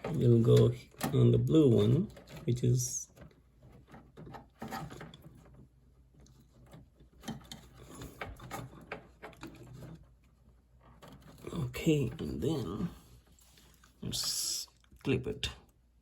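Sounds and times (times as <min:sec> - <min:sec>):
plastic parts clicking and knocking: 0:00.0 - 0:12.6.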